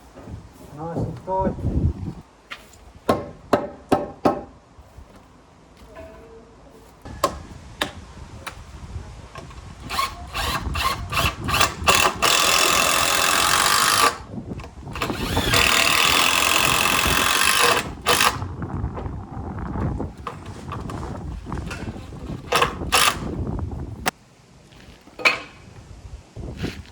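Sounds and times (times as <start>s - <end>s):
sharp knocks: 3.1s - 4.5s
power drill running: 9.8s - 14.3s, 14.9s - 18.4s, 22.4s - 23.4s.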